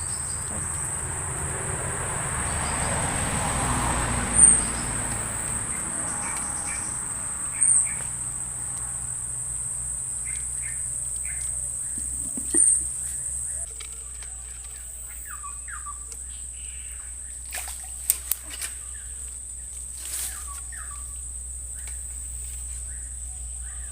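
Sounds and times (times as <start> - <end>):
high-pitched insect drone: 0.0 - 13.8.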